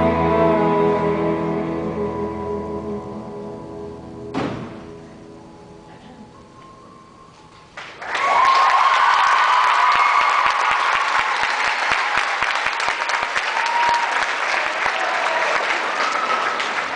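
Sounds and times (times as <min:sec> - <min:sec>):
audience clapping: 0:07.7 - 0:16.9
audience whooping: 0:07.9 - 0:16.9.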